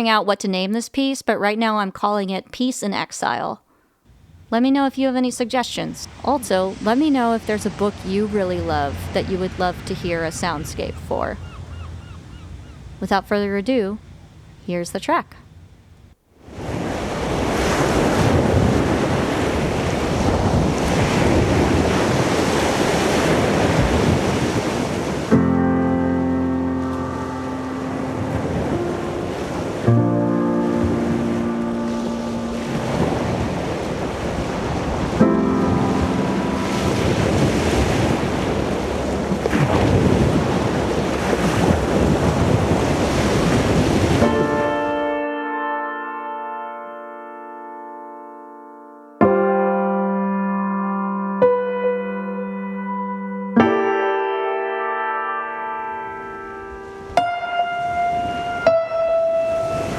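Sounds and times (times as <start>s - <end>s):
ocean waves: 2.9s - 45.3s, 55.2s - 59.9s
sustained piano chord: 25.3s - 38.6s, 44.1s - 59.9s.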